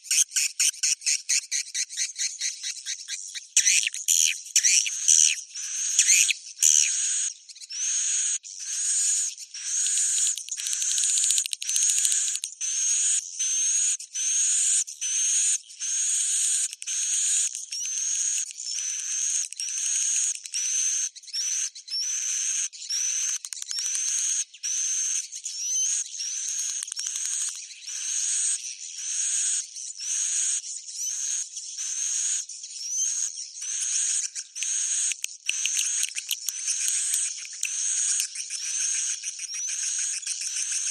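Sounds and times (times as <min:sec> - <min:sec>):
buzzy bird chirps: 0:00.0 - 0:40.9
sharp clicks: 0:34.6 - 0:38.4.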